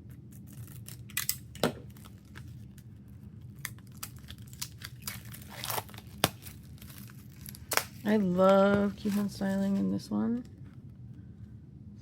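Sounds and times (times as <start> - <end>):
paper and plastic rustling: 1.8 - 10.6.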